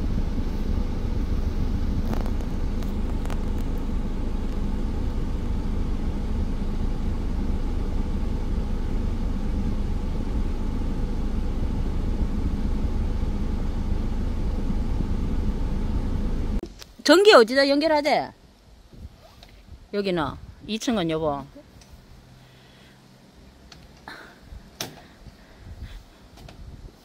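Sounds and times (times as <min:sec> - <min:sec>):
car engine idling: 0:00.0 - 0:16.6.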